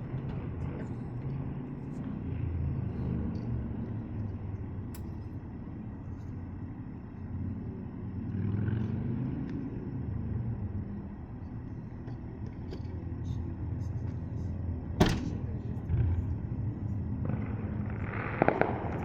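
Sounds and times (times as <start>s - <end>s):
street traffic rumble: 0.0s - 19.0s
vehicle passing: 7.3s - 11.2s, 13.2s - 19.0s.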